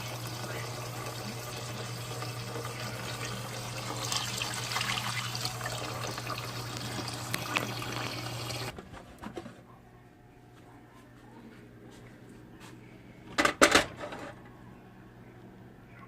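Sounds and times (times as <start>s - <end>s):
tap water filling a pot: 0.0s - 8.7s.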